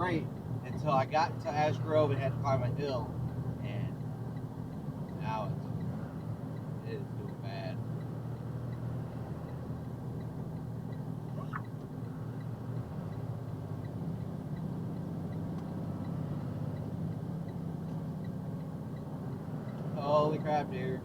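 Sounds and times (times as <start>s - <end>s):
man talking: 0.0s - 4.0s, 5.2s - 5.6s, 6.8s - 7.8s, 20.0s - 21.0s
diesel truck engine droning: 0.0s - 21.0s
faint regular tick: 9.4s - 20.0s.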